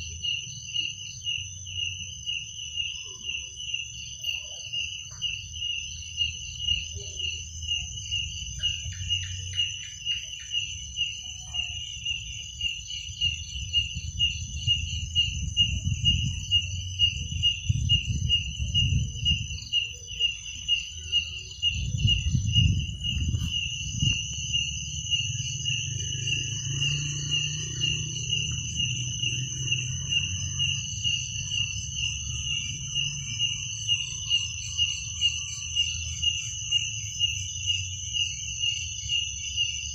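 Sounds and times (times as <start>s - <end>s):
crickets chirping: 0.0s - 39.9s
high continuous insect trill: 0.0s - 39.9s
low rumble: 21.6s - 33.1s.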